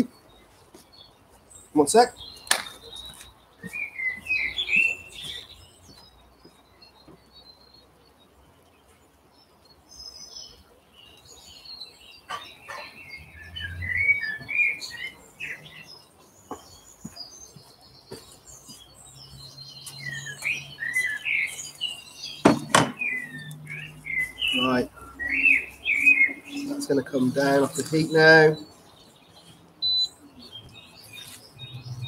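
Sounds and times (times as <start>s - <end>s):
small birds chirping: 0.0s - 32.0s
sharp knock: 22.4s - 23.0s.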